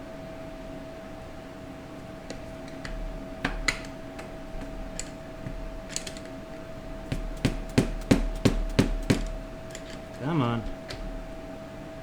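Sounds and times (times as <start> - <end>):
faint steady hum: 0.0 - 12.0
hand tools clicking on metal: 2.3 - 10.2.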